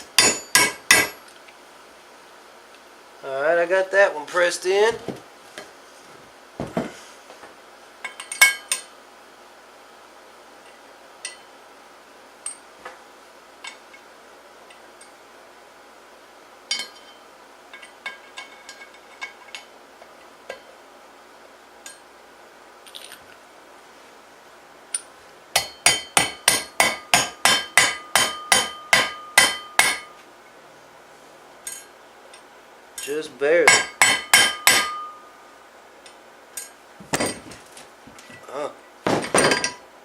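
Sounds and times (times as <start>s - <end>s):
hammer tapping on metal: 0.2s - 1.2s, 25.6s - 30.2s, 33.7s - 35.2s
small metal parts clinking: 22.8s - 23.4s.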